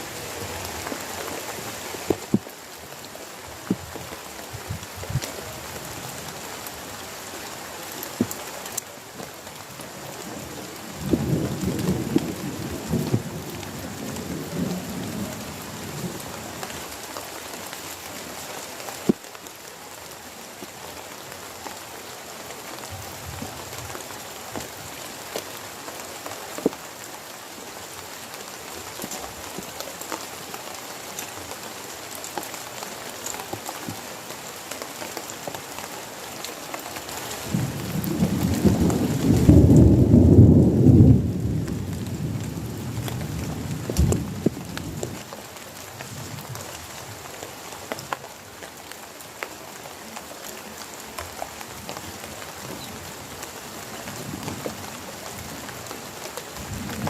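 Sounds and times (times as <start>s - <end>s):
heavy rain falling: 0.0s - 57.0s
thunder rumbling: 37.4s - 45.2s.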